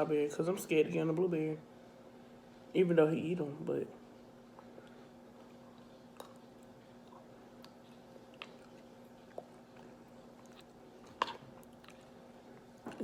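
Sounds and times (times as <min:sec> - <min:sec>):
steady low hum: 0:00.0 - 0:13.0
chewing with wet mouth clicks: 0:04.5 - 0:13.0.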